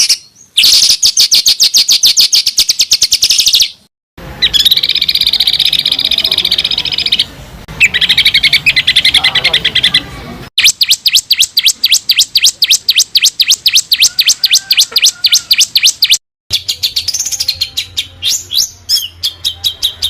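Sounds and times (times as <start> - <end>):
rapid bird twittering: 0.0 - 3.8, 4.4 - 20.0
songbird singing sharp sweeping notes: 10.6 - 20.0.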